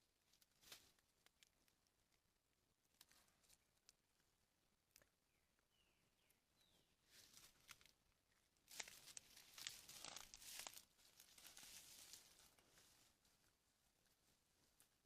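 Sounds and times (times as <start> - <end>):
rustling in dry leaves: 7.1 - 7.9, 8.7 - 13.5.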